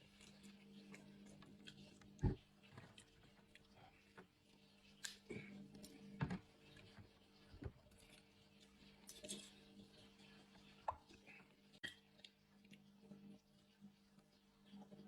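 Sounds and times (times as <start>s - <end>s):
person chewing with wet smacks: 0.0s - 6.0s, 10.5s - 13.2s.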